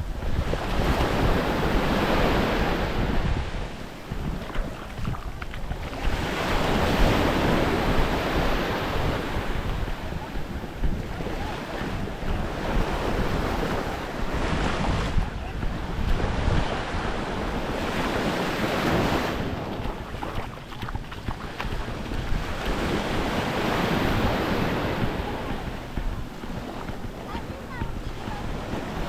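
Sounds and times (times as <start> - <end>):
waves washing onto beach: 0.0 - 29.0
wind buffeting microphone: 0.0 - 29.0.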